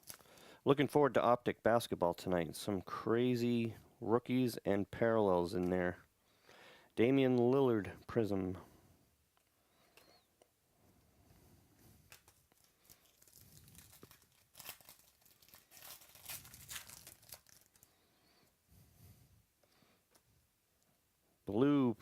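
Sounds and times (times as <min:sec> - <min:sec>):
wrapper crinkling and tearing: 0:00.0 - 0:00.5, 0:12.1 - 0:18.1.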